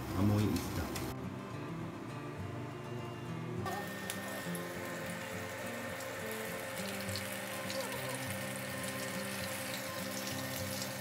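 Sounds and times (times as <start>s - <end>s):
tofu sizzling in hot oil: 3.7s - 11.0s.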